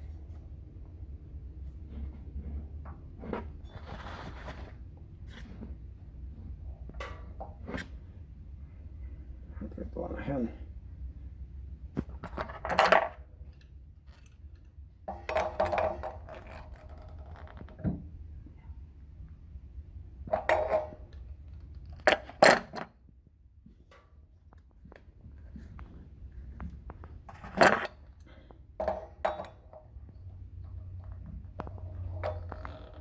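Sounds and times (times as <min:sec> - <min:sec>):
metal fittings clinking and scraping: 0:27.4 - 0:33.0.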